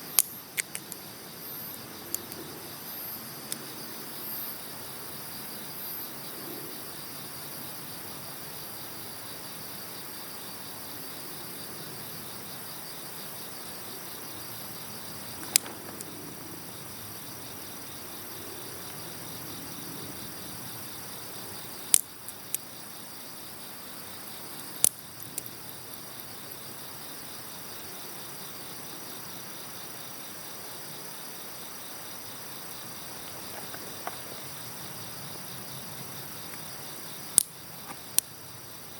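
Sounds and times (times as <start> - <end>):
crickets chirping: 0.0 - 38.9
campfire burning: 14.2 - 18.4
wood popping in fire: 15.2 - 16.2.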